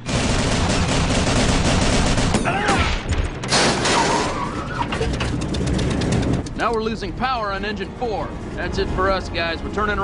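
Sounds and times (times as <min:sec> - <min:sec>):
machine-gun fire: 0:00.0 - 0:02.5.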